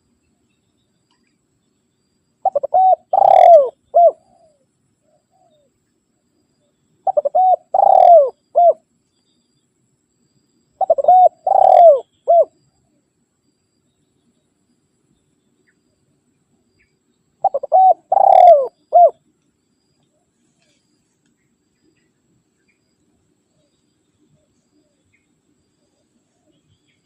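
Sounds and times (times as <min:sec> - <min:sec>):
dove cooing: 0:02.4 - 0:04.6, 0:07.0 - 0:08.8, 0:10.8 - 0:12.5, 0:17.4 - 0:19.2.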